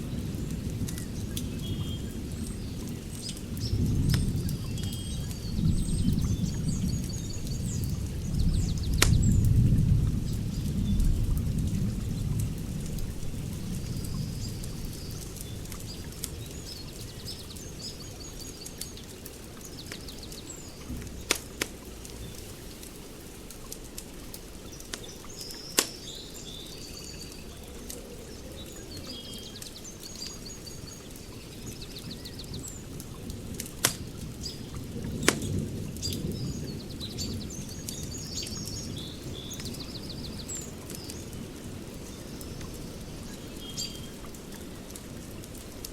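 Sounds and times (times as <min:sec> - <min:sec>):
small birds chirping: 0:00.0 - 0:45.9
wood fire crackling and popping: 0:06.1 - 0:18.0, 0:18.6 - 0:26.1, 0:32.5 - 0:36.3.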